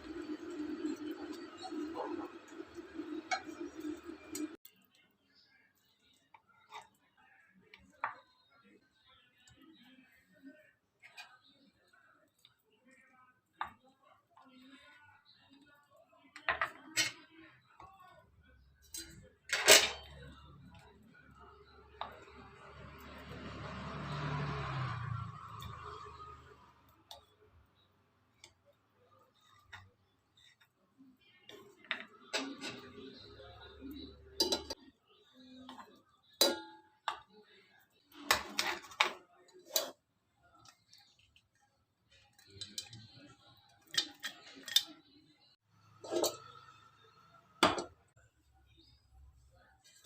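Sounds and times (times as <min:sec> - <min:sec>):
kitchenware clicking and tapping: 0:00.0 - 0:04.6, 0:16.4 - 0:17.4, 0:18.8 - 0:20.8, 0:31.5 - 0:37.4, 0:38.1 - 0:40.0, 0:42.3 - 0:45.2, 0:46.0 - 0:46.8, 0:47.6 - 0:48.1
utensils clinking on cookware: 0:00.0 - 0:04.6, 0:16.4 - 0:17.5, 0:18.8 - 0:26.5, 0:31.4 - 0:37.5, 0:38.1 - 0:40.0, 0:42.2 - 0:45.2, 0:45.9 - 0:48.1.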